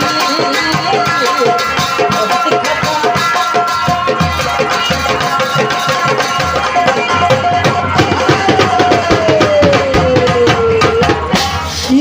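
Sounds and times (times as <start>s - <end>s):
live folk band music: 0.0s - 12.0s
quick hand-drum strokes: 0.0s - 12.0s.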